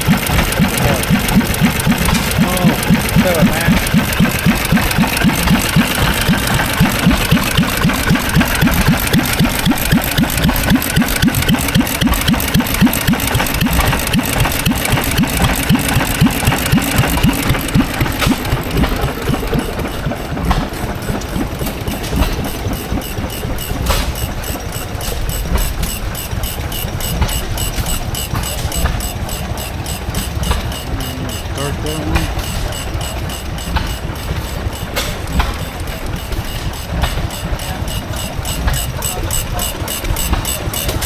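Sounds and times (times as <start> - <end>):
old engine idling: 0.0 - 41.0.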